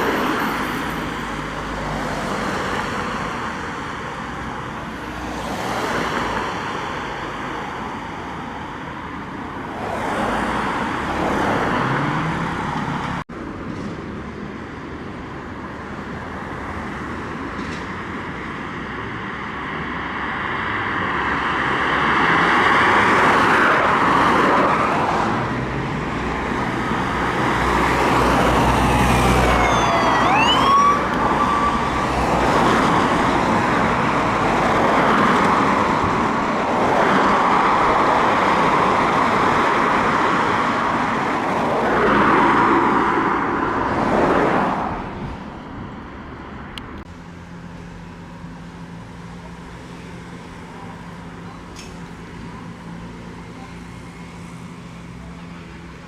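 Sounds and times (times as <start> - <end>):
road traffic: 0.0 - 56.0
emergency vehicle sirens: 26.8 - 39.8.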